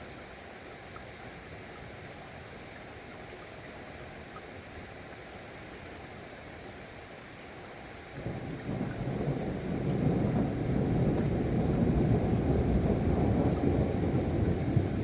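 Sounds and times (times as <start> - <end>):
steady rain: 6.4 - 15.0
thunder rumbling: 8.3 - 15.0.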